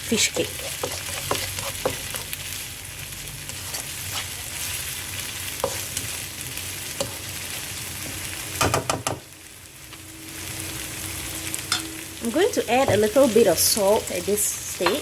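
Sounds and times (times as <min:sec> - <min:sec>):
food sizzling in hot oil: 0:00.0 - 0:15.0
utensil knocking against pan: 0:08.6 - 0:09.2.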